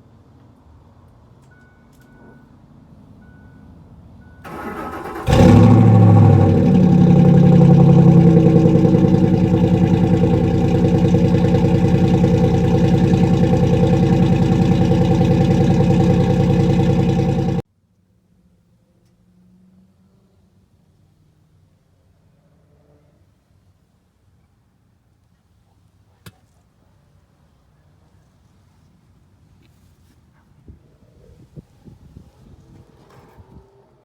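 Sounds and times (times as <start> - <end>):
truck engine starting and idling: 4.4 - 17.6.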